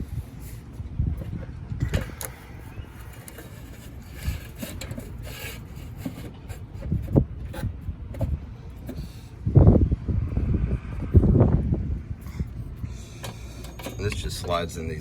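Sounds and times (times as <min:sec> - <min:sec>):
rubbing and scraping handling: 0:00.0 - 0:09.4.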